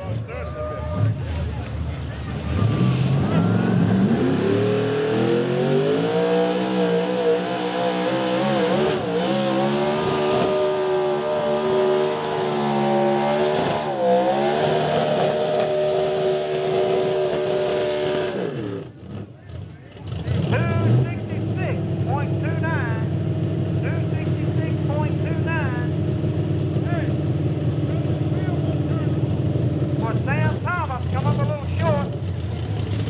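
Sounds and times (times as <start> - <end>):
truck engine at high revs: 0.0 - 33.0.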